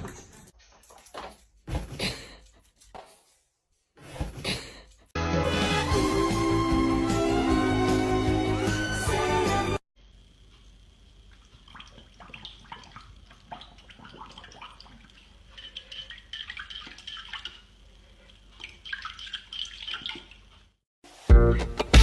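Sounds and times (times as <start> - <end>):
water drips and splashes: 11.3 - 20.7.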